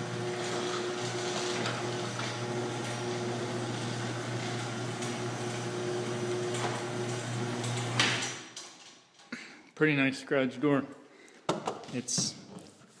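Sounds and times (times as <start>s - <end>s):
garage door motor hum: 0.0s - 8.7s.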